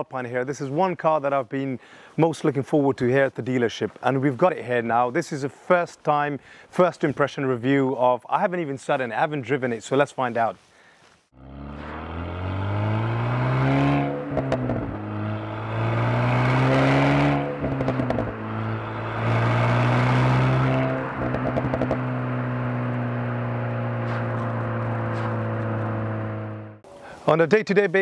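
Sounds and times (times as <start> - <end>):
exhaust crackles: 11.3 - 27.2
car engine accelerating: 11.4 - 26.8.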